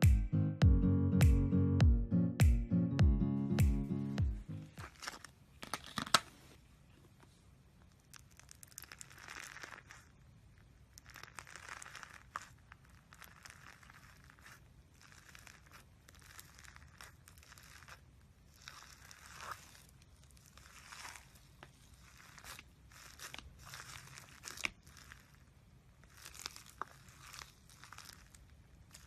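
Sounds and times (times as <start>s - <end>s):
slime crackling and tearing: 7.9s - 29.0s.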